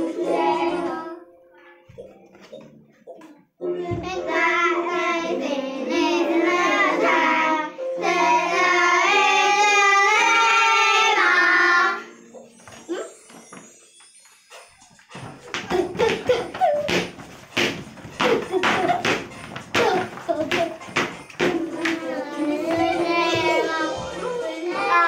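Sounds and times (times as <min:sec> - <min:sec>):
children singing: 0:00.0 - 0:01.7, 0:03.6 - 0:12.3, 0:18.2 - 0:25.0
musical accompaniment: 0:00.0 - 0:25.0.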